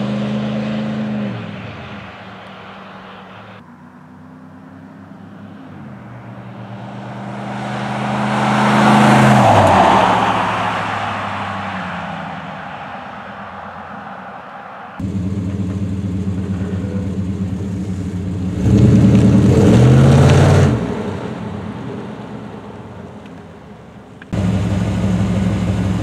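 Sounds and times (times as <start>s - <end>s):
truck driving past: 0.0s - 26.0s.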